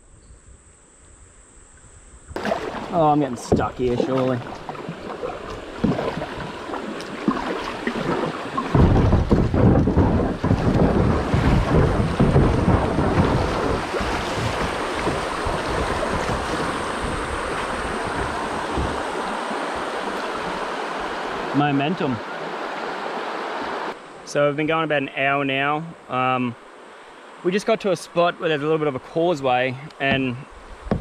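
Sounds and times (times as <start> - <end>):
water rushing through creek rapid: 2.4 - 24.4
heavy low rumble: 8.8 - 19.1.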